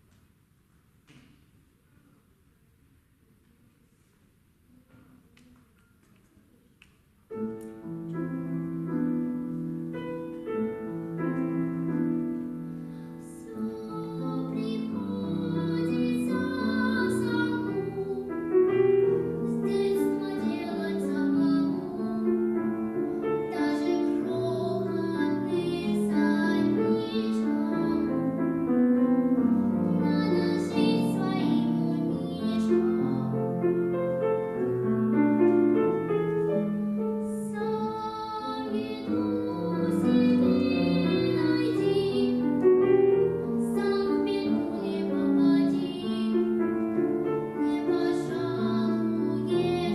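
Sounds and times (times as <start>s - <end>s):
piano accompaniment: 7.2s - 49.9s
young woman singing: 13.0s - 28.8s, 29.6s - 33.7s, 37.2s - 49.9s.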